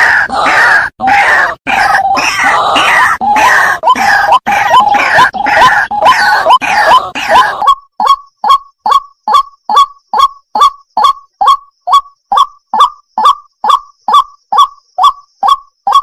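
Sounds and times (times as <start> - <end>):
water hen calling: 0.0 - 7.7.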